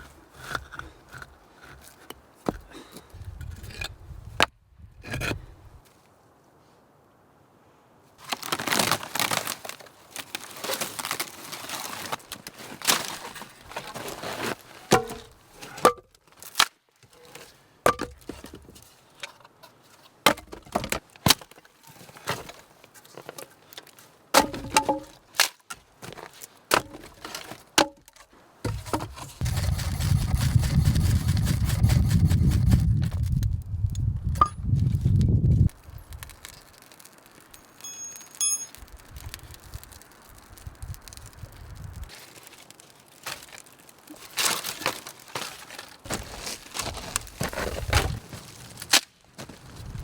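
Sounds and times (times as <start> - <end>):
rustling: 8.2 - 17.7, 35.7 - 50.0
wood being chopped and snapped: 14.9 - 16.8, 20.3 - 21.6, 24.3 - 29.1.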